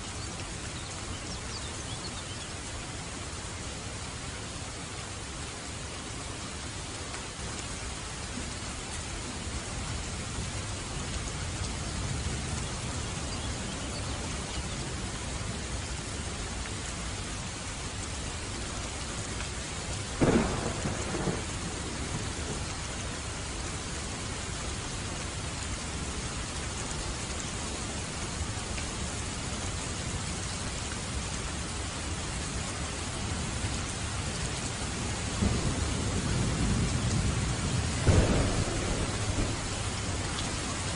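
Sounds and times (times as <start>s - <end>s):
heavy rain: 0.0s - 40.9s
sharp thunderclap: 20.2s - 21.7s, 35.4s - 39.9s
low thunder rumble: 20.2s - 23.0s, 35.4s - 40.9s.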